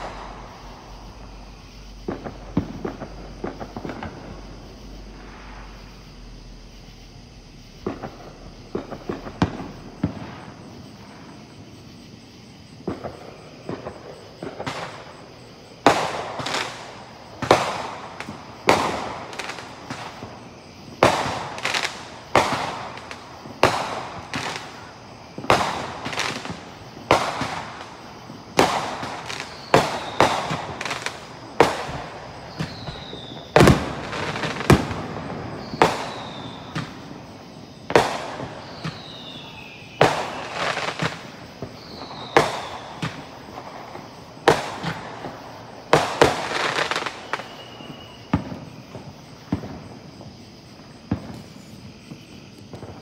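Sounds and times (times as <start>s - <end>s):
fireworks bangs: 0.0s - 53.0s
falling whistles: 32.4s - 34.8s, 35.5s - 37.0s, 41.7s - 43.1s, 46.5s - 48.4s.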